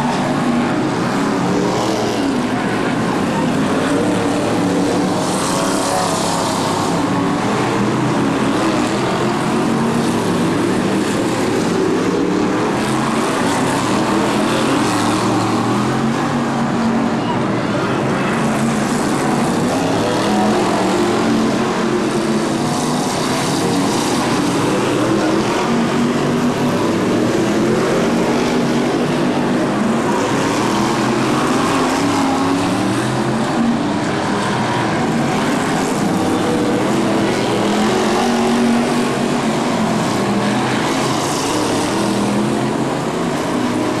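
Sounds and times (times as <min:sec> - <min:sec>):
racing car engines accelerating: 0:00.0 - 0:44.0.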